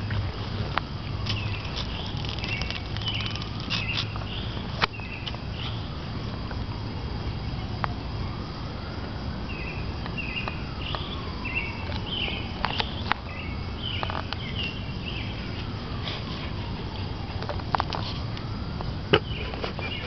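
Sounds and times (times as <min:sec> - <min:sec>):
small birds chirping: 0:01.1 - 0:06.0, 0:09.5 - 0:17.4, 0:19.1 - 0:20.0.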